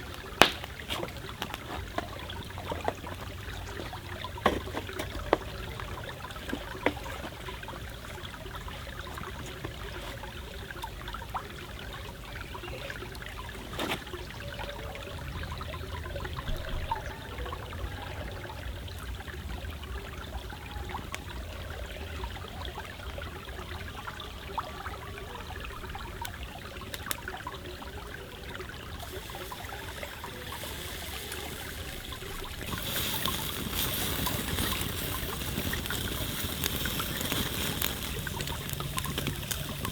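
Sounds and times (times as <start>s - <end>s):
stream trickling: 0.0s - 39.9s
small clicks and pops: 26.1s - 27.4s, 32.3s - 39.9s
bright hiss: 29.0s - 39.9s.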